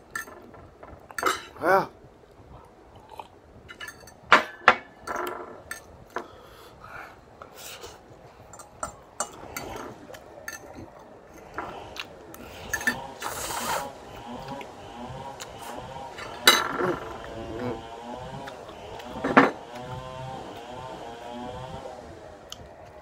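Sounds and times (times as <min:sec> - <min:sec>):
fork scraping and clinking on plate: 0:08.6 - 0:11.9, 0:12.6 - 0:14.6
slurping noodles: 0:09.3 - 0:22.3.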